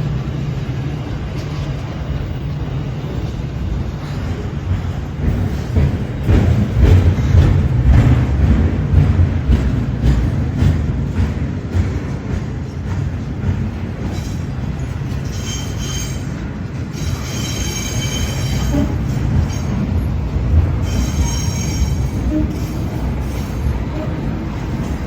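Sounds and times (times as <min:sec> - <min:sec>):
train rumbling: 0:00.0 - 0:25.0
wheel squeal: 0:15.2 - 0:16.4, 0:17.0 - 0:19.8, 0:20.8 - 0:24.2.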